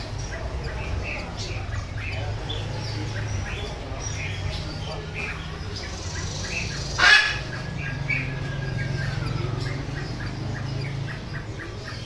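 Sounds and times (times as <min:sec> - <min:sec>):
caged birds chirping: 0:00.0 - 0:12.0
loud harsh squawk: 0:06.8 - 0:07.7.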